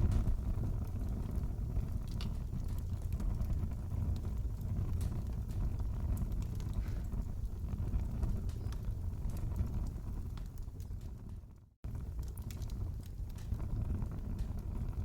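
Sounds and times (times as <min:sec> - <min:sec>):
fire pops and snaps: 0:00.0 - 0:15.0
wood fire crackling: 0:00.0 - 0:15.0.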